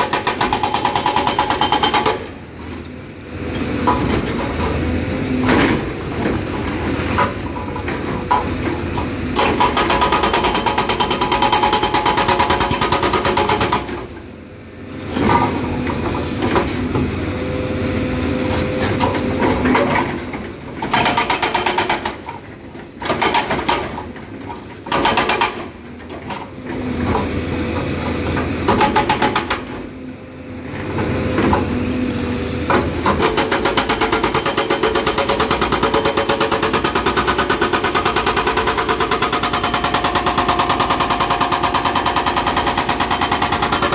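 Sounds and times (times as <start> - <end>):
hydraulic breaker hammering rock: 0.0 - 2.4, 5.4 - 14.1, 18.5 - 26.3, 27.0 - 29.8, 32.7 - 43.9.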